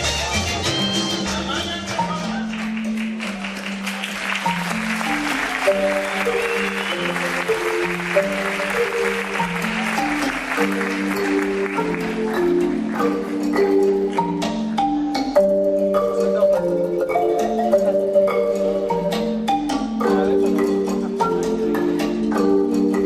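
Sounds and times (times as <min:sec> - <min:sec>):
band music: 0:00.0 - 0:23.0
marimba melody: 0:00.0 - 0:23.0
audience applauding: 0:02.2 - 0:14.3.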